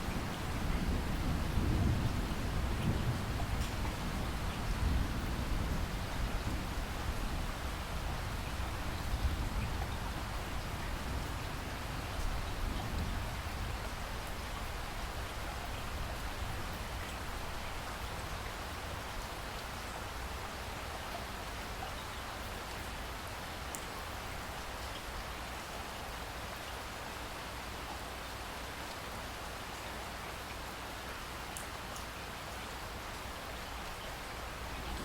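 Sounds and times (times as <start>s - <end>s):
steady rain falling: 0.0s - 35.0s
distant thunder rumble: 34.6s - 35.0s.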